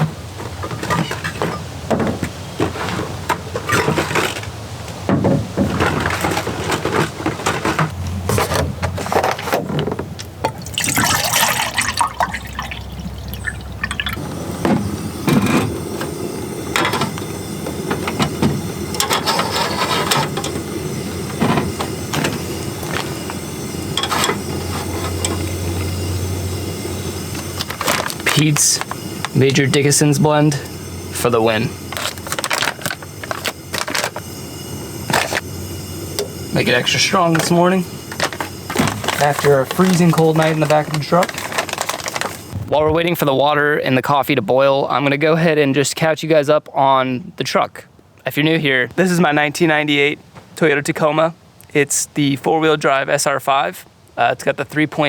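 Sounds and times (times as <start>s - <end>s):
water poured into a pot: 10.5s - 14.2s
cooking gear clinking: 10.5s - 42.6s.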